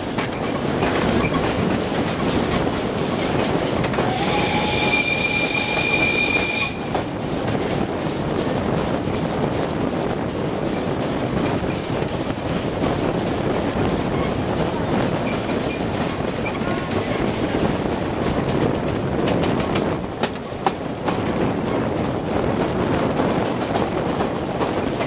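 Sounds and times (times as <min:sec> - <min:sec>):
train wheels rumbling on track: 0:00.0 - 0:25.0
shrill steam whistle tone: 0:04.0 - 0:07.0.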